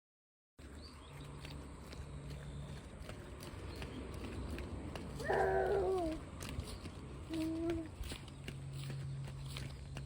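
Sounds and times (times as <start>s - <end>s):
toddler vocal sound: 5.2s - 6.2s.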